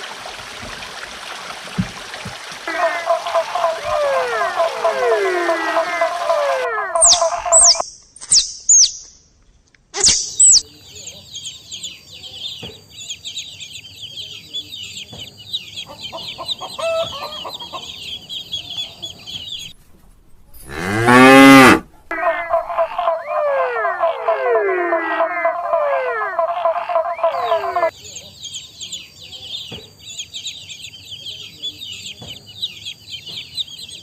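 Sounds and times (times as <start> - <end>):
high-pitched animal chirping: 2.7 - 9.1, 10.0 - 10.7, 22.1 - 27.9
cow mooing: 20.6 - 27.9.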